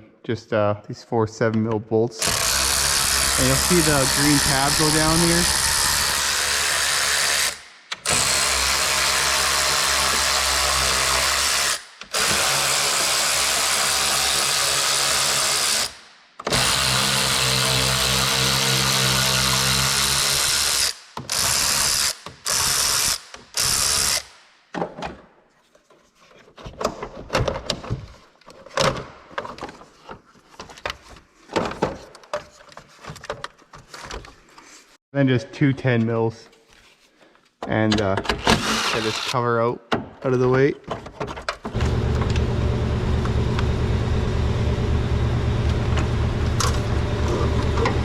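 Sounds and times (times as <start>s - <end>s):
cordless power tool spinning: 2.2s - 24.3s, 38.5s - 39.4s.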